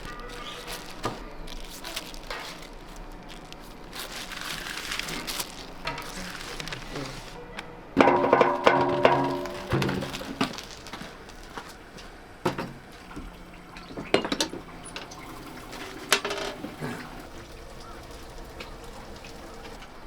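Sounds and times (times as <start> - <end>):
liquid sounds: 0.0 - 20.0
utensils clinking against dishes: 0.0 - 20.0.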